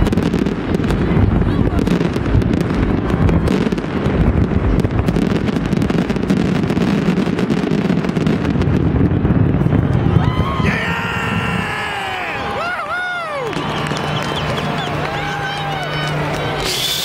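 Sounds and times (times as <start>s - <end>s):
continuous low rumble: 0.0s - 17.0s
fireworks bangs and cracks: 0.0s - 17.0s.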